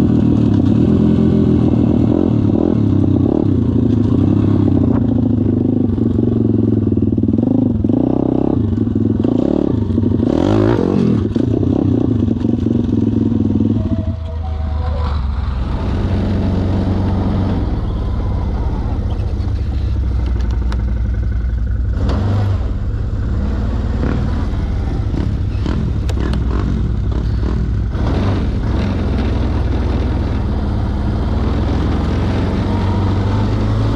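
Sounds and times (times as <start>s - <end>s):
pit bike engine revving: 15.1s - 33.9s.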